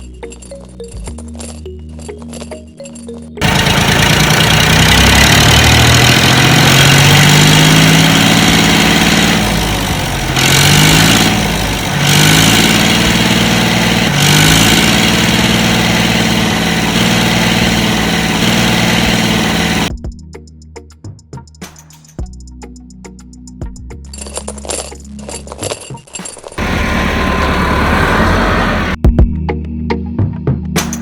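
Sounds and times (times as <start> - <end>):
engine revving: 3.4 - 19.9, 26.6 - 29.0.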